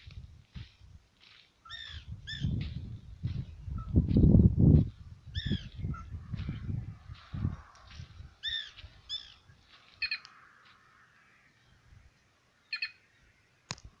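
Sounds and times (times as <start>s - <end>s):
bird calling: 1.6s - 2.6s, 5.3s - 6.6s, 8.4s - 11.9s, 12.6s - 13.4s.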